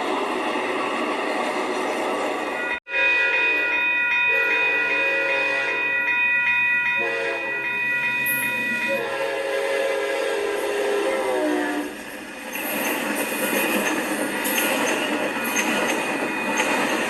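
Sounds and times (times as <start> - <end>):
locomotive air horn chord: 2.9 - 5.9, 6.9 - 7.7, 8.8 - 12.0.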